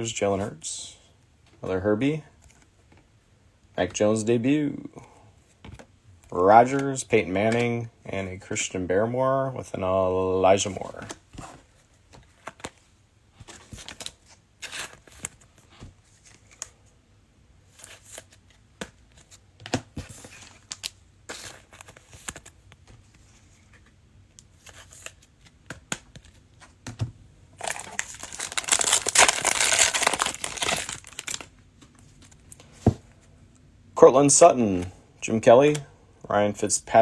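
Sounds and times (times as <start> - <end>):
wrapper tearing and crinkling: 27.6 - 31.5
trading cards rustling: 27.6 - 32.7.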